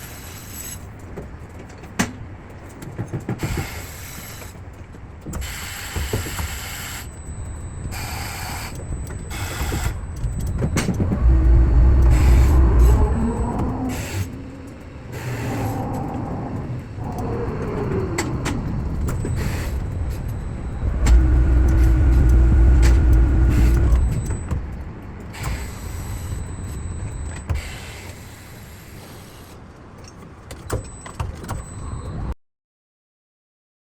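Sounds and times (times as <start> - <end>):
steady whine: 5.3 - 29.4
motor low rumble: 7.1 - 27.5.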